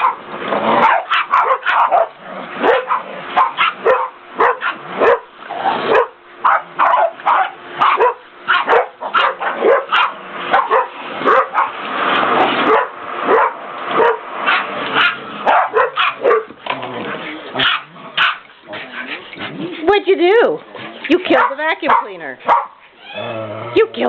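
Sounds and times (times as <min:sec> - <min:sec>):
small dogs barking: 0:00.0 - 0:16.6, 0:17.5 - 0:18.5, 0:21.3 - 0:22.9
vacuum cleaner: 0:09.4 - 0:15.5.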